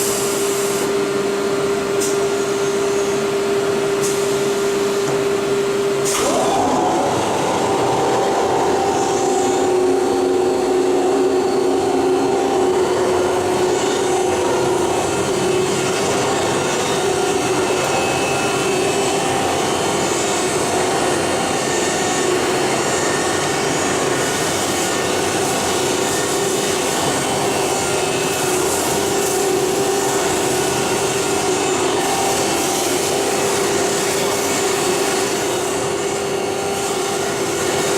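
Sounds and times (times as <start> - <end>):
router machining noise: 2.5 - 37.9
spindle whine: 5.0 - 34.3.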